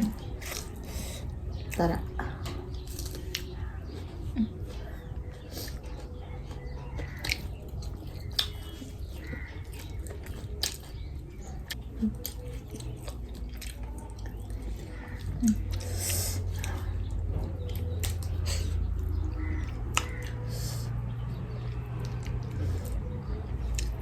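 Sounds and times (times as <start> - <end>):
person chewing food: 0.0 - 1.8, 2.4 - 24.0
wet mouth clicks and smacks: 7.1 - 8.8, 9.7 - 14.5.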